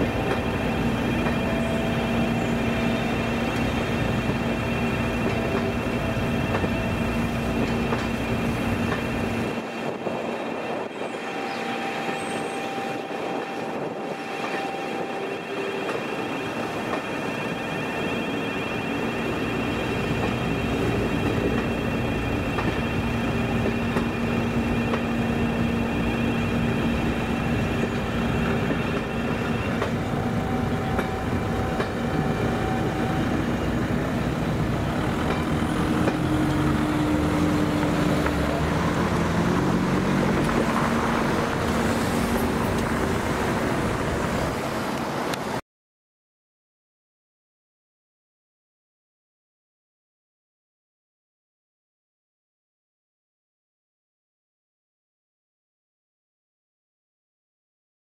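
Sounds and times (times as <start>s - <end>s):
train wheels rolling on rails: 0.0s - 45.6s
level crossing alarm: 10.2s - 34.4s.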